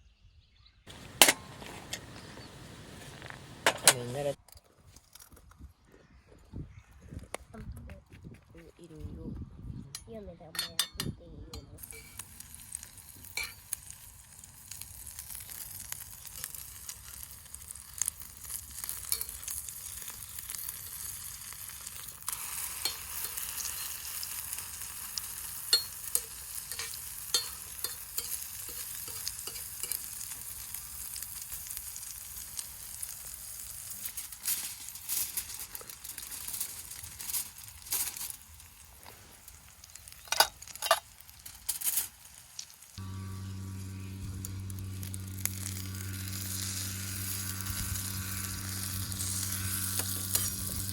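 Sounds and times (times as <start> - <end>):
food sizzling in frying: 0.9 - 4.4, 11.8 - 50.9.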